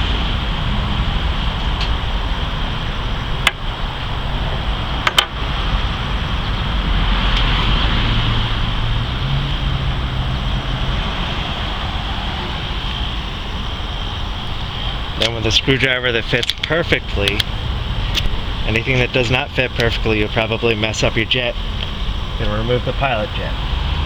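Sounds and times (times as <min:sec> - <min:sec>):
background rumble and hiss: 0:00.0 - 0:24.0
small parts clicking: 0:16.2 - 0:17.5, 0:18.1 - 0:18.4.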